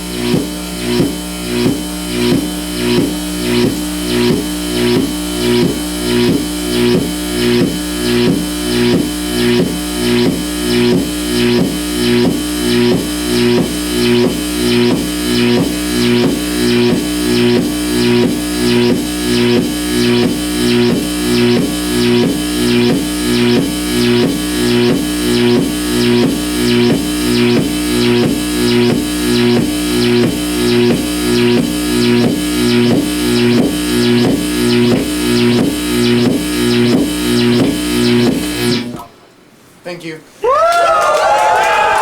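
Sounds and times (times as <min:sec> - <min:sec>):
held tones: 0:00.0 - 0:39.2
pulsing electrical buzz: 0:00.0 - 0:39.4
low hum: 0:15.4 - 0:39.4.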